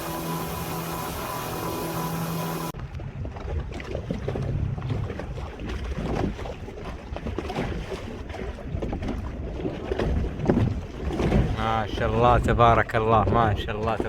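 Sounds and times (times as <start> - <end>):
low rumble of hull and water: 0.0 - 14.0
wind buffeting microphone: 0.0 - 14.0.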